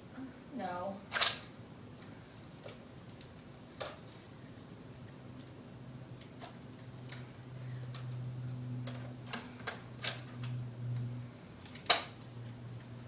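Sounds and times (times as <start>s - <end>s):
low steady hum: 0.0s - 13.0s
sharp plastic snap: 1.1s - 1.5s.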